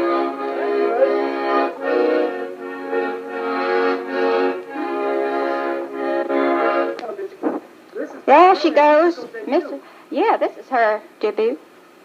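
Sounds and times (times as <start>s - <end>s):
accordion playing chords: 0.0s - 7.6s.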